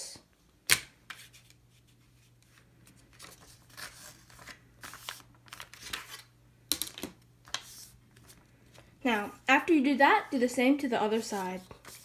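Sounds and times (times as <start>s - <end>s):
paper being folded and creased: 2.5s - 6.2s, 11.2s - 12.0s.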